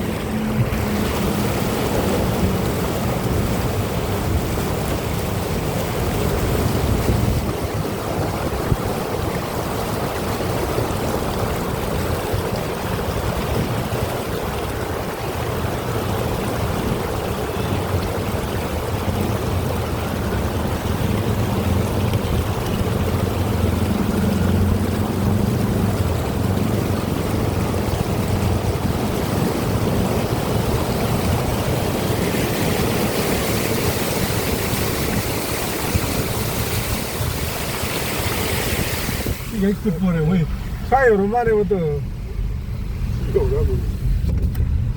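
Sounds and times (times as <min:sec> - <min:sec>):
flowing floodwater: 0:00.0 - 0:44.9
heavy rain: 0:00.0 - 0:44.9
low rumble: 0:39.3 - 0:44.9.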